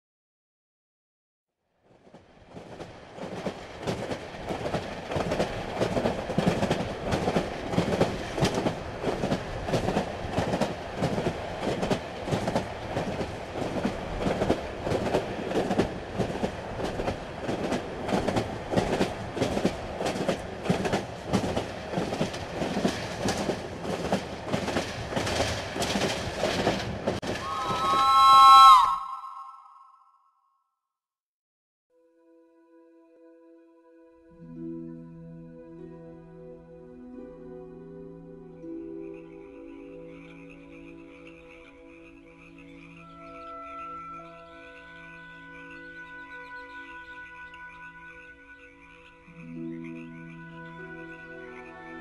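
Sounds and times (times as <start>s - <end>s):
train wheels clacking over rail joints: 2.6s - 27.8s
train horn chord: 27.4s - 29.9s.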